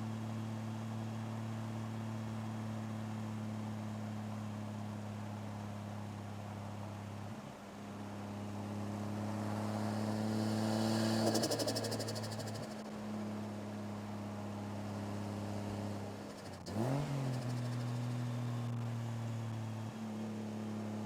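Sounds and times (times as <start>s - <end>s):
car engine running: 8.5s - 13.0s
turbo flutter: 9.6s - 12.9s.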